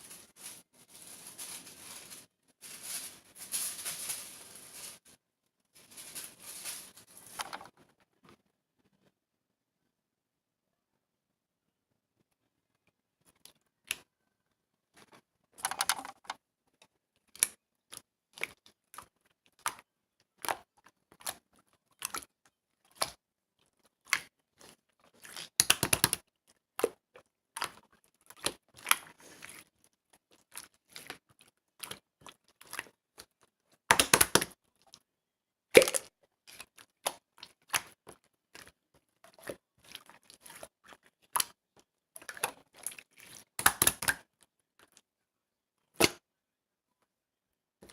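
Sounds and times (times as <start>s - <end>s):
slime squishing: 17.3s - 35.1s, 35.7s - 45.1s
slime clicking and popping: 43.6s - 44.2s.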